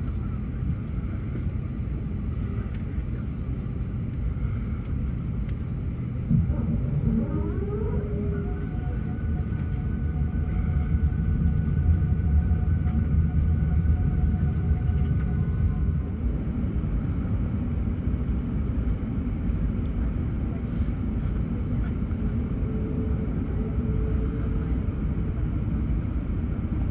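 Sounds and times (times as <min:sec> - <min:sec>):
deep engine rumble: 0:00.0 - 0:26.9
jet engine whine: 0:00.0 - 0:26.9.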